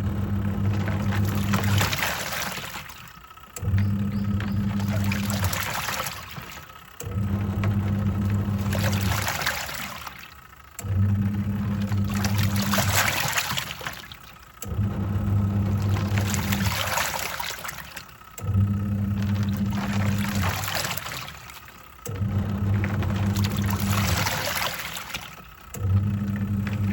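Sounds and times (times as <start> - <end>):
washing machine motor hum: 0.0 - 26.9
swirling water rushing: 0.6 - 3.1, 4.2 - 6.7, 8.3 - 10.3, 11.7 - 14.3, 15.5 - 18.0, 19.1 - 25.4.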